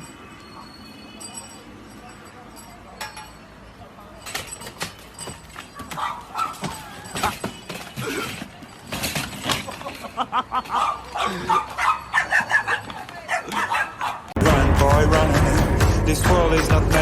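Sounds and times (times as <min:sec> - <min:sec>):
dog barking and yipping: 0:05.7 - 0:07.1, 0:10.6 - 0:14.4.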